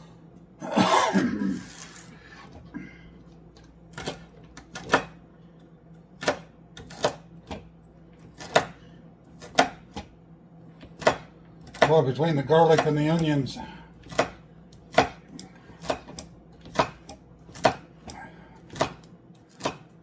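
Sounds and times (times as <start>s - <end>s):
knife chopping on cutting board: 3.9s - 5.2s, 6.2s - 10.2s, 10.8s - 13.3s, 14.0s - 20.0s.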